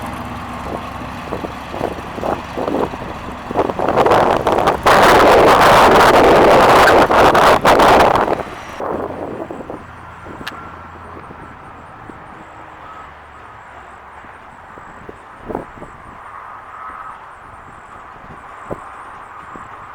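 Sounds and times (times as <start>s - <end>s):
car engine running: 0.0s - 14.3s
wind buffeting microphone: 0.0s - 19.9s.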